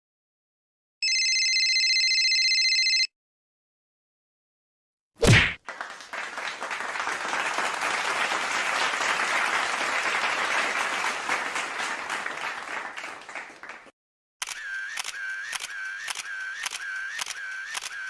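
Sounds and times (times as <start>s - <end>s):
crowd applauding: 5.6s - 13.9s.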